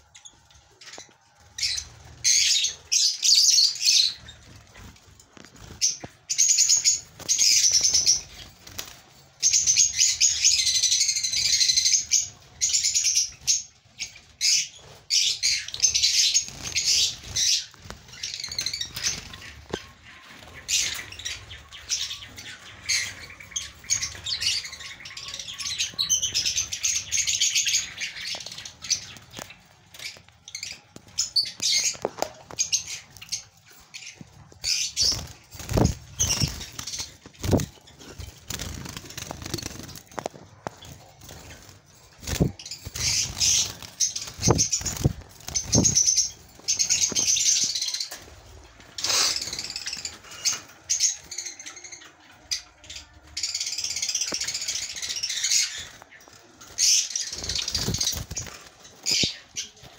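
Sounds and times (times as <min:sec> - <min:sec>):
sparrows chirping: 0:00.0 - 0:59.9
wing flutters: 0:34.6 - 0:50.7.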